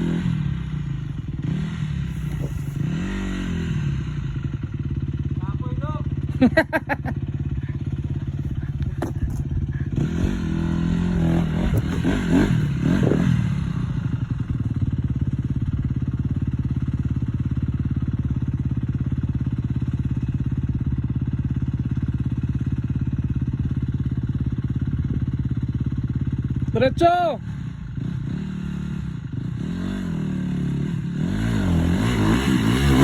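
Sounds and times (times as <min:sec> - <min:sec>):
dirt bike engine revving: 0:00.0 - 0:17.7, 0:27.4 - 0:33.0.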